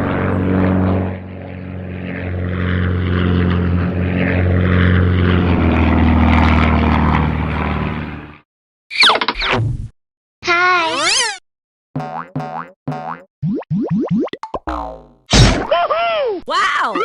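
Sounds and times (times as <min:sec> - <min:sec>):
cartoon vehicle engine drone: 0:00.0 - 0:08.4, 0:12.0 - 0:15.5.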